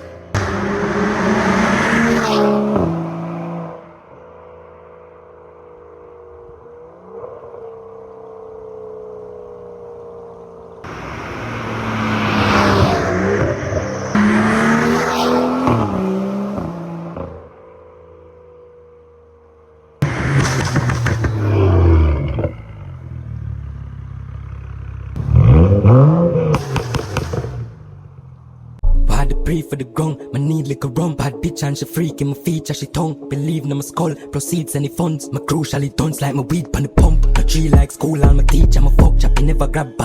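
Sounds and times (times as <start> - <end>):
car engine passing by: 0.0 - 8.7, 10.7 - 17.6, 20.0 - 28.8.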